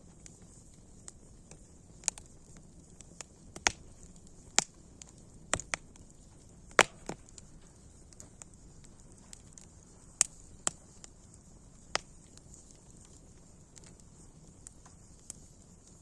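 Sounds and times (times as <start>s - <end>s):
faint steady hiss: 0.0s - 16.0s
wood fire crackling and popping: 0.0s - 16.0s.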